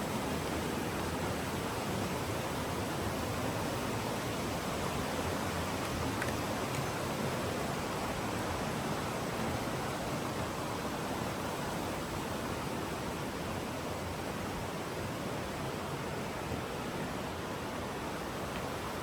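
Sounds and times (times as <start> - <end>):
stream flowing over rocks: 0.1 - 19.0.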